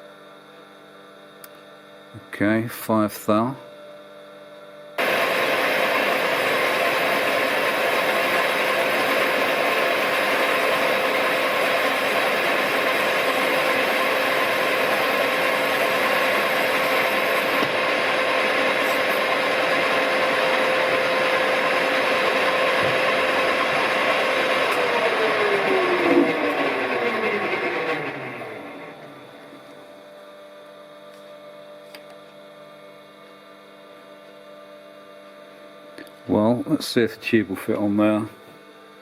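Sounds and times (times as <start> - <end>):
lathe running: 5.0 - 29.8.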